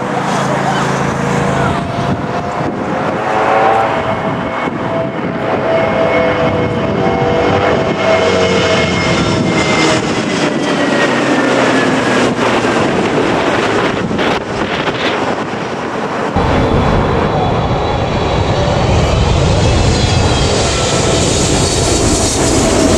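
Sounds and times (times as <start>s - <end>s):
jet airliner passing overhead: 0.0s - 22.9s
deep rumble: 16.3s - 22.9s.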